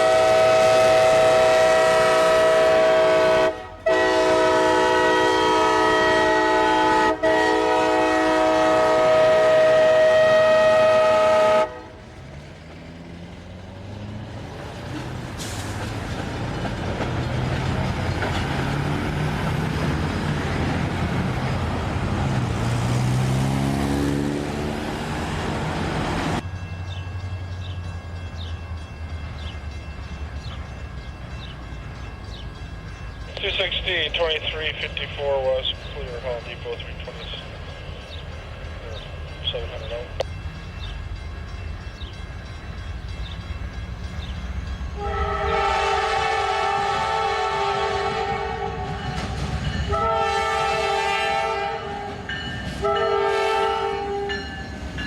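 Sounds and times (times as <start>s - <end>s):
diesel locomotive horn: 0.0s - 12.3s, 44.9s - 54.8s
diesel locomotive engine running: 0.0s - 55.0s
rail noise: 0.0s - 55.0s.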